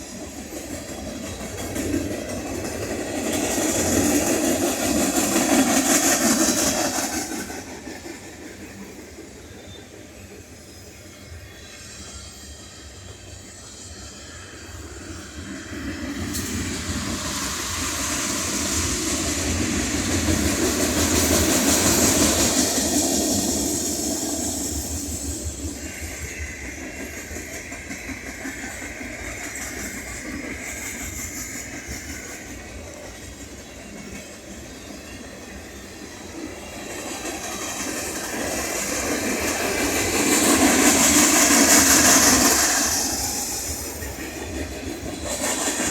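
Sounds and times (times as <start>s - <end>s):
freight train rolling past: 0.0s - 45.9s
wheels clacking over rail joints: 16.0s - 45.9s.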